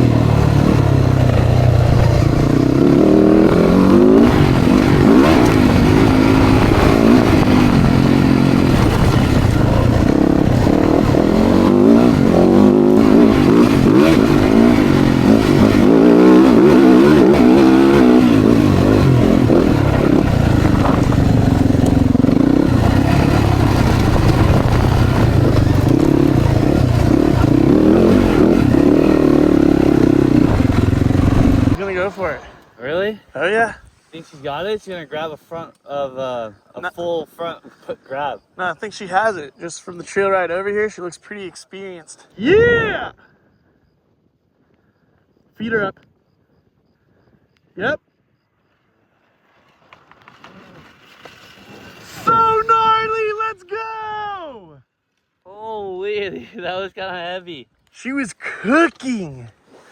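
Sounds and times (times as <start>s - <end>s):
dirt bike engine revving: 0.0s - 32.6s.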